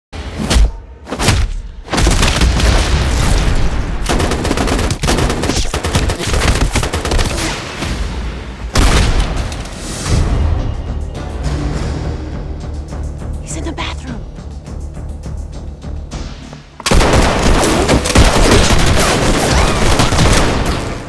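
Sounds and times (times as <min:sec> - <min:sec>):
rapid gunfire with booms: 0:01.8 - 0:09.6, 0:16.9 - 0:21.0.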